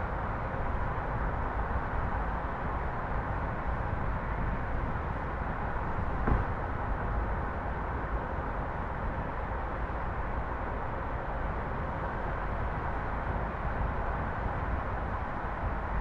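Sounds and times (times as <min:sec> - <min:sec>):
brief thump: 0:06.2 - 0:06.6.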